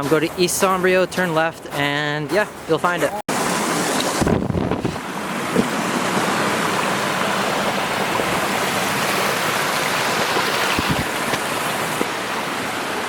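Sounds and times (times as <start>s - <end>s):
waterfall rushing: 5.0s - 13.0s.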